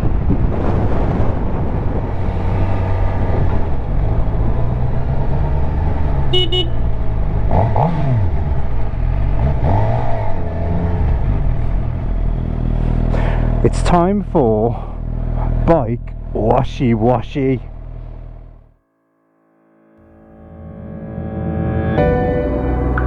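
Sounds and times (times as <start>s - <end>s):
wind and road noise: 0.0s - 18.7s
motorcycle engine running: 1.4s - 16.6s, 17.6s - 18.7s.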